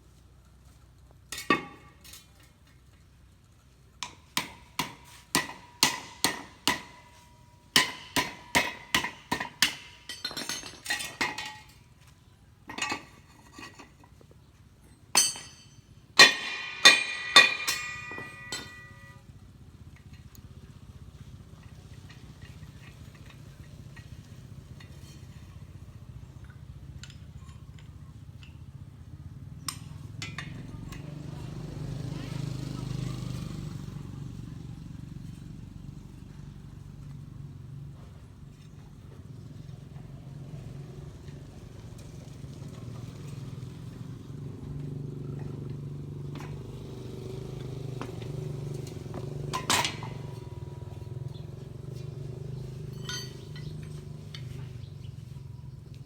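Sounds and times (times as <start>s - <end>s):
hard objects clinking: 46.4s - 54.7s.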